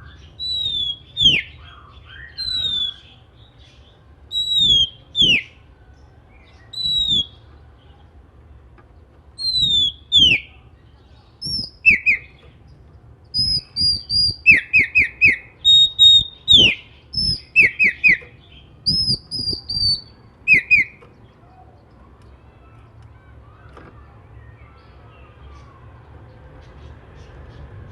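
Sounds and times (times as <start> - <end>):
bird singing whistled phrases: 0.0 - 3.2, 4.3 - 5.6, 6.7 - 7.4, 9.4 - 10.6, 11.4 - 12.5, 13.4 - 21.0.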